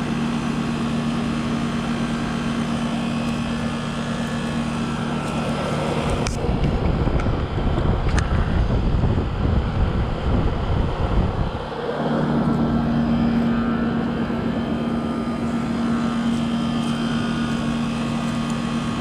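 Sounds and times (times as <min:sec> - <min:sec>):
heat pump humming: 0:00.0 - 0:19.0.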